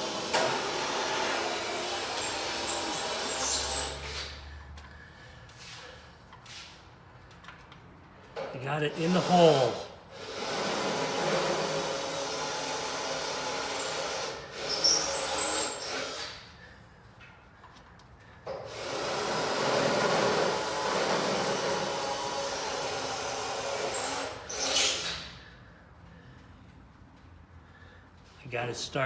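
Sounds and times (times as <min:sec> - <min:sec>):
power tool running: 0:00.0 - 0:04.4, 0:08.8 - 0:16.5, 0:18.5 - 0:25.4.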